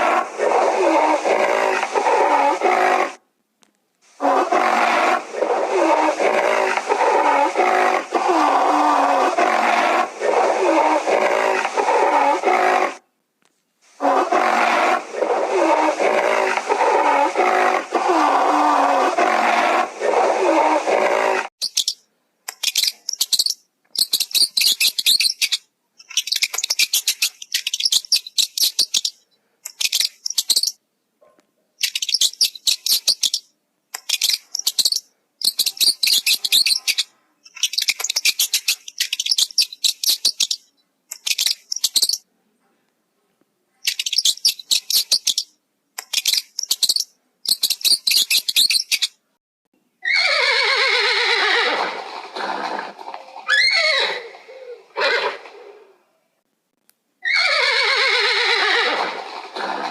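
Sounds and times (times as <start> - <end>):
horse whinnying: 4.2 - 13.0, 50.0 - 55.9, 57.2 - 59.9
bird chattering calls: 21.6 - 30.8, 31.8 - 42.2, 43.8 - 49.2.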